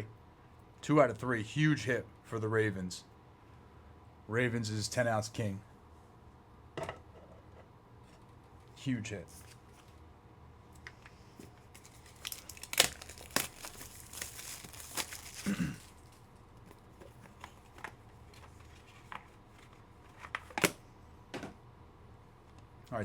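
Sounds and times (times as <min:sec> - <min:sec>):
card pack wrapper tearing and crinkling: 0:11.7 - 0:16.2
cards clicking and snapping: 0:11.8 - 0:15.6.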